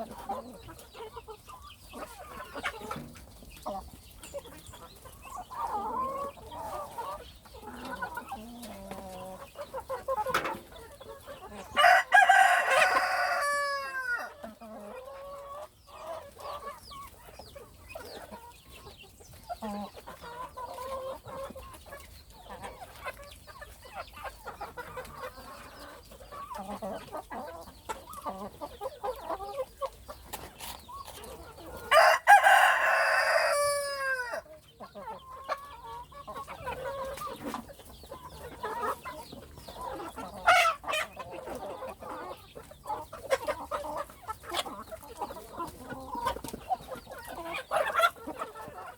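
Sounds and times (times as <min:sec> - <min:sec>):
chickens clucking: 0:00.0 - 0:48.9
rooster crowing: 0:11.8 - 0:14.3, 0:31.9 - 0:34.4.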